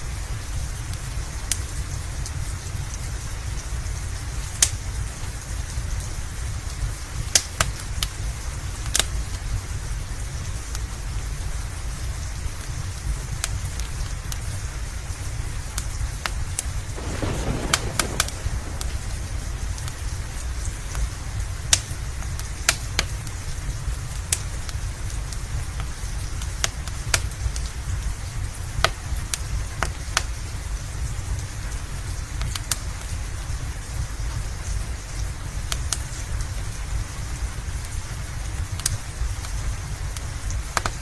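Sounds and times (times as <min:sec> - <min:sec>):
steady rain: 0:00.0 - 0:41.0
wood fire crackling: 0:15.8 - 0:30.3
low rumble: 0:17.0 - 0:21.0.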